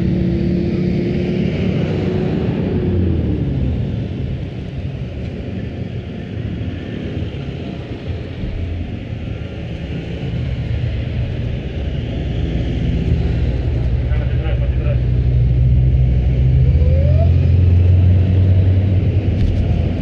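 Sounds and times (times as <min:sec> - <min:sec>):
wind noise: 0:15.1 - 0:20.0.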